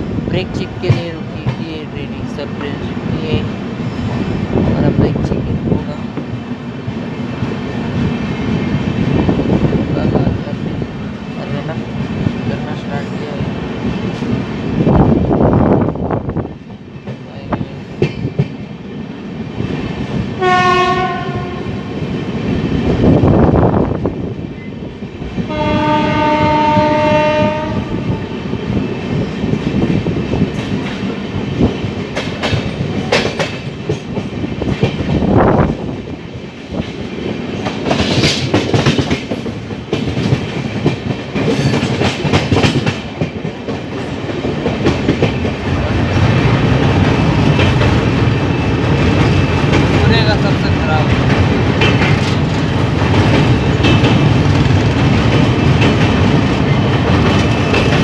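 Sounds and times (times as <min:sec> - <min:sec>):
train wheels clacking on rails: 0:00.0 - 0:15.0, 0:16.4 - 0:58.0
train horn blasts: 0:20.4 - 0:21.9, 0:25.5 - 0:28.2.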